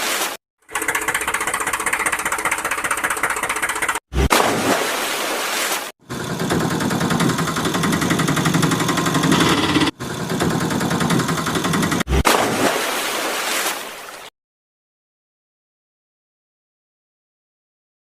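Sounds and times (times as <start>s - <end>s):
heavy vehicle engine clattering: 6.1s - 12.1s.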